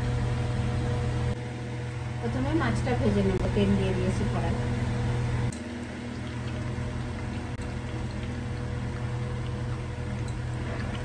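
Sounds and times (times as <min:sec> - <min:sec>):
low hum: 0:00.0 - 0:11.0
oil popping: 0:05.5 - 0:11.0.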